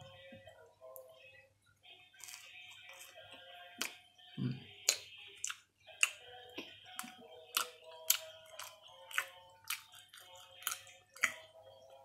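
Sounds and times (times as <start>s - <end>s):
background music with ticking beat: 3.2s - 12.0s.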